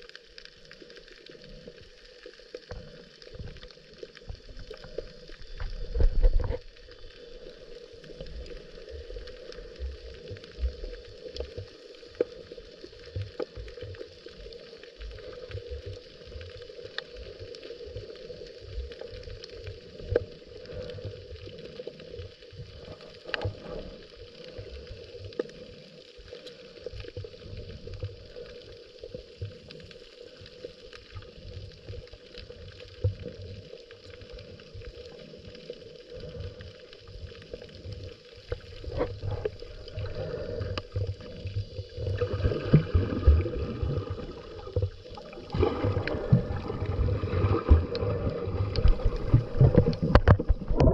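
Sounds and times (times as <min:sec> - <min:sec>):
muffled underwater rumble: 0:00.0 - 0:50.9.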